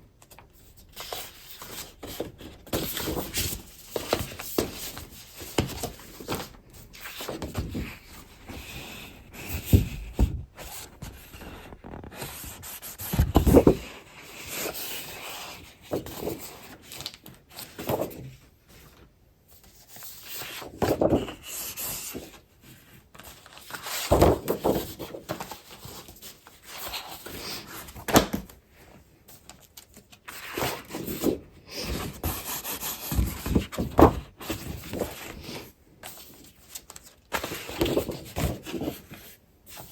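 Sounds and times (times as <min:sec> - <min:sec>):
paper and plastic rustling: 0:00.2 - 0:39.9.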